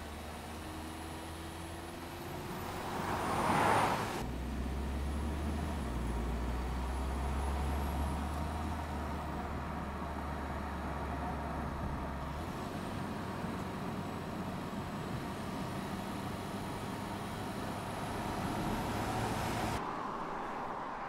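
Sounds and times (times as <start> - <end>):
low vehicle rumble: 2.2 - 21.0
vehicle rushing past: 2.3 - 5.7, 17.9 - 21.0.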